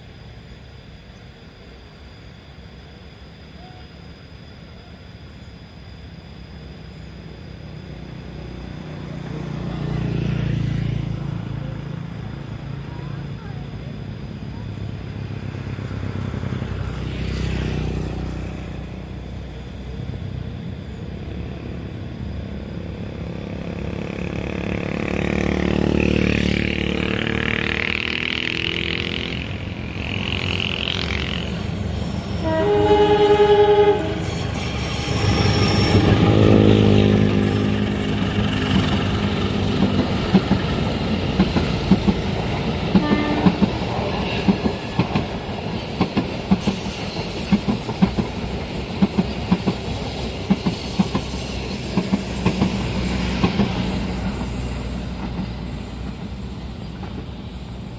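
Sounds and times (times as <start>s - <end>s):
locomotive rumbling: 8.2s - 57.9s
train horn blast: 30.4s - 38.4s, 42.9s - 43.8s.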